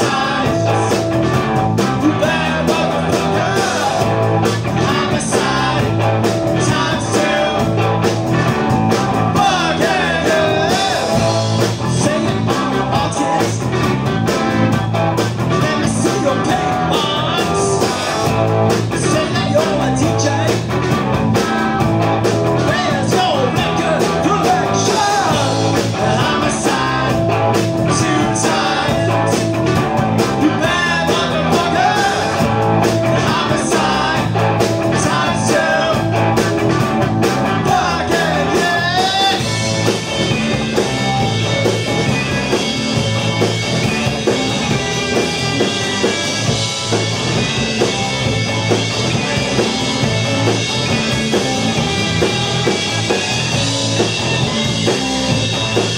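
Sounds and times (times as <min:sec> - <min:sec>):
live rock band playing: 0:00.0 - 0:55.9
person singing: 0:01.9 - 0:04.1, 0:04.8 - 0:07.8, 0:09.4 - 0:13.7, 0:22.6 - 0:29.5, 0:30.4 - 0:36.1, 0:37.6 - 0:39.6.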